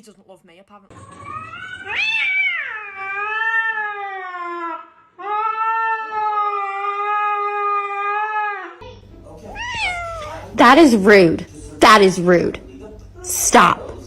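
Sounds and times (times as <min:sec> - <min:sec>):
cat yowling: 0:01.2 - 0:08.7, 0:09.6 - 0:10.4.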